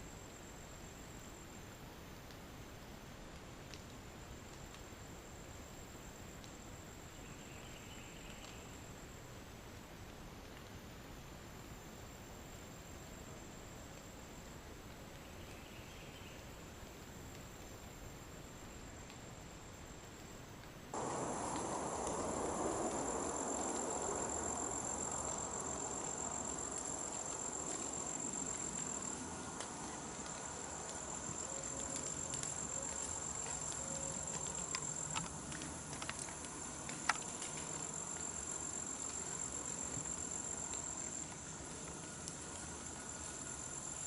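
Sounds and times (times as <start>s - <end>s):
insect chorus buzzing: 21.0s - 44.0s.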